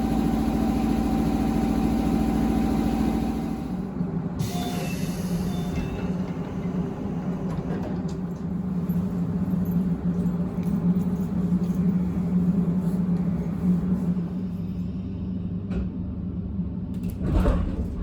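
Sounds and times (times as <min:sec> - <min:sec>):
electric train hum and rumble: 0:00.0 - 0:18.0.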